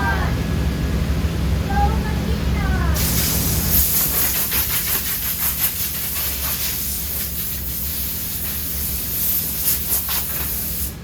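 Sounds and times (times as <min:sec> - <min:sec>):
machinery hiss: 0:03.0 - 0:11.0.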